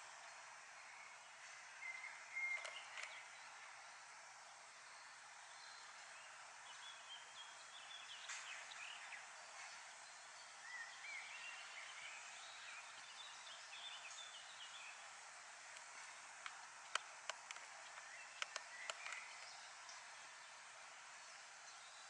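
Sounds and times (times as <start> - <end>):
faint birdsong: 0.0 - 22.0
steady hiss: 0.0 - 22.0
sharp clicks: 2.5 - 3.2, 15.7 - 19.5.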